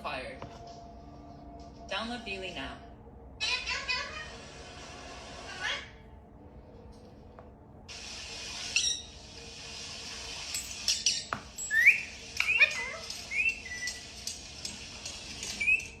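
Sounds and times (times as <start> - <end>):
parrot chirping and whistling: 8.6 - 9.2, 10.9 - 14.2, 15.4 - 16.0.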